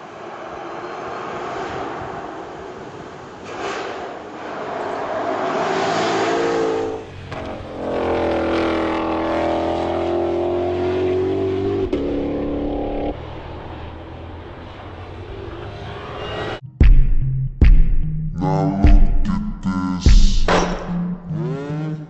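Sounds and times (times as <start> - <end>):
car engine running hard: 0.0 - 16.6.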